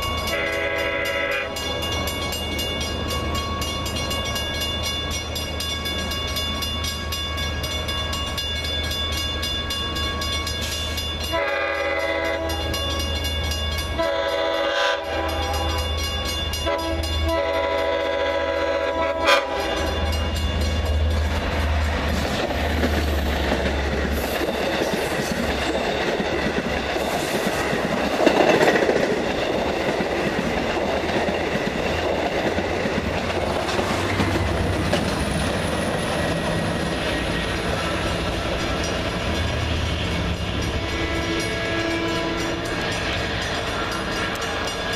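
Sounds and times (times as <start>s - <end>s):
train engine drone: 0.0s - 44.9s
train wheels clattering on rails: 0.0s - 44.9s
train air horn blasts: 0.3s - 1.7s, 11.2s - 13.0s, 14.0s - 16.0s, 16.6s - 20.2s, 40.6s - 43.1s.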